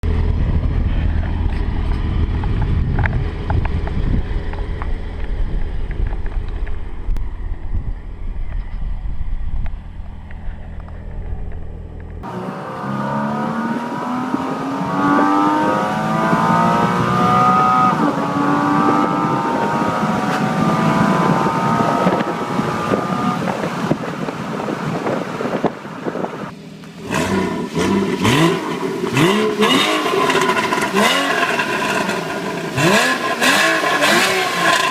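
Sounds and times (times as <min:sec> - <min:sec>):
car engine running at low revs: 0:00.0 - 0:34.9
car engine accelerating hard: 0:10.1 - 0:24.3, 0:26.4 - 0:34.9.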